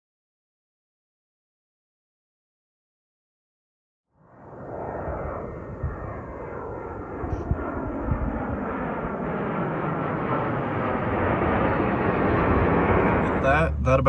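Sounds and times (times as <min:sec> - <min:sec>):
airliner engines roaring: 0:04.4 - 0:14.0.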